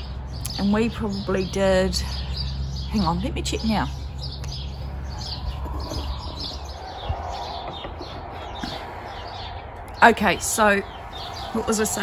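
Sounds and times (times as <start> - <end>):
small birds chirping: 0.0 - 12.0
steady low rumble: 1.5 - 12.0.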